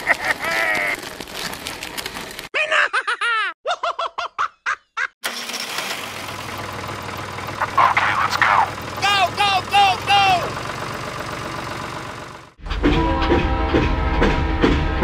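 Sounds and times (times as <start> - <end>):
miniature tractor engine humming: 0.0 - 2.5, 5.2 - 12.6
cartoon-style giggle: 2.6 - 5.2.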